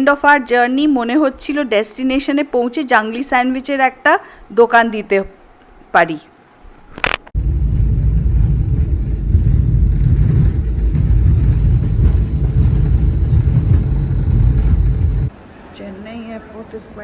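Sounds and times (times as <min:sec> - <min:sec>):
jet cabin rumble: 0:07.3 - 0:15.3.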